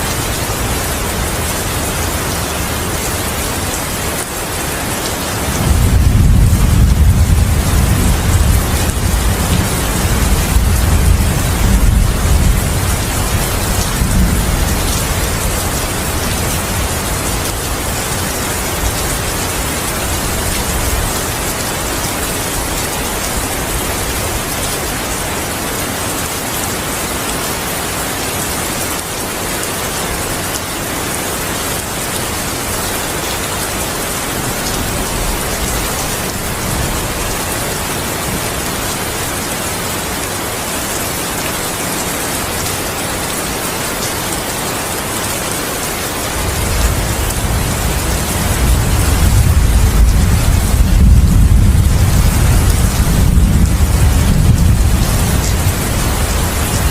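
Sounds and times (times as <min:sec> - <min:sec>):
heavy rain: 0:00.0 - 0:56.9
low thunder rumble: 0:05.5 - 0:17.9, 0:46.5 - 0:56.9.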